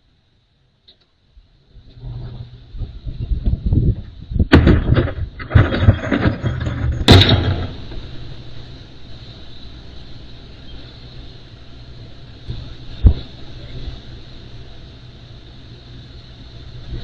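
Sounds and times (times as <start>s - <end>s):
engine humming: 0.7s - 17.0s
loud bangs and clattering knocks: 4.5s - 7.9s.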